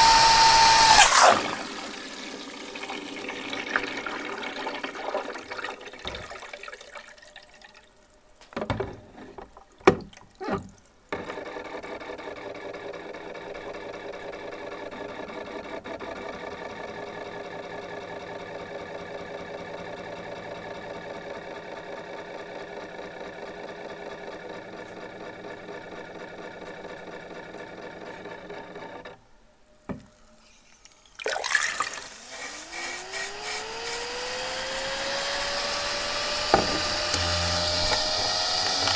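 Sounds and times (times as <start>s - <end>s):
vacuum cleaner motor humming: 0.0s - 3.5s, 31.7s - 38.9s
sharp knocks: 36.5s - 38.1s.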